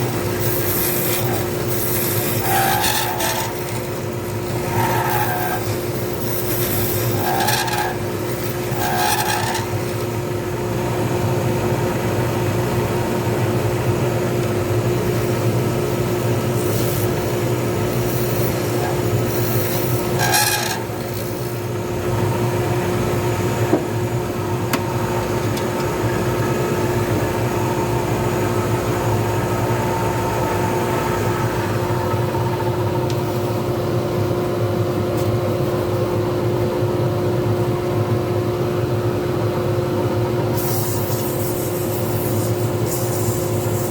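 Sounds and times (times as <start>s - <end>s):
scraping on spinning blank: 0.0s - 10.1s, 16.5s - 21.7s
lathe humming: 0.0s - 34.4s.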